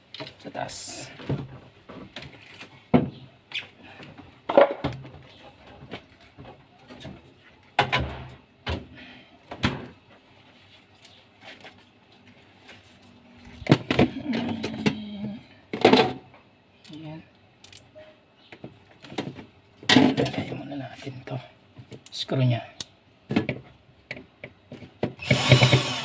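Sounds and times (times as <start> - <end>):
knocks and clicks of refrigerator parts: 7.8 - 8.9, 9.5 - 10.0, 13.6 - 15.0, 23.3 - 25.2.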